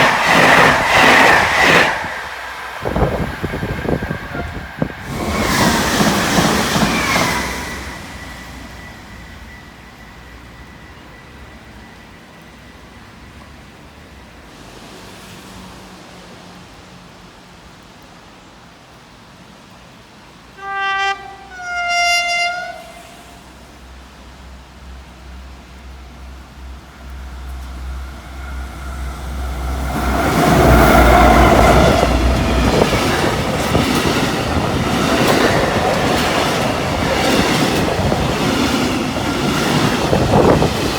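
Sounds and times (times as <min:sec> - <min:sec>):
train passing: 0:00.0 - 0:40.9
two-tone train horn: 0:04.1 - 0:04.9, 0:20.5 - 0:23.7.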